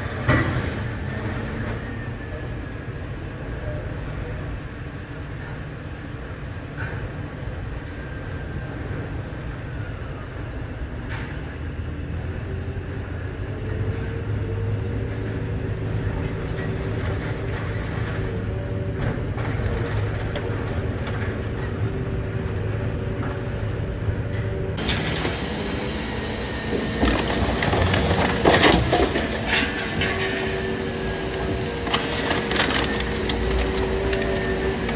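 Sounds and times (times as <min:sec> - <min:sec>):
scrap metal baler humming: 0:24.8 - 0:34.9.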